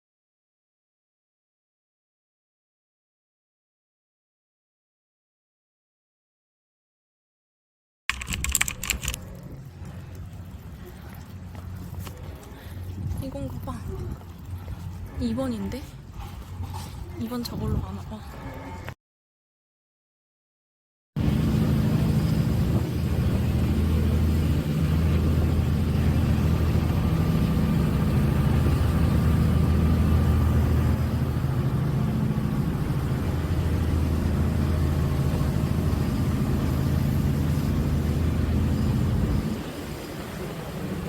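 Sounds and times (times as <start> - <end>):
large engine droning: 21.2 - 41.0.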